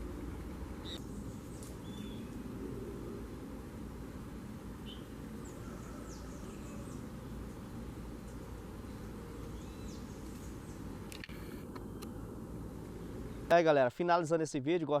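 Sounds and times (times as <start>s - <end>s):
low outdoor rumble: 0.0s - 13.5s
small birds chirping: 0.8s - 2.5s, 4.8s - 11.1s
sharp clicks: 11.1s - 12.1s.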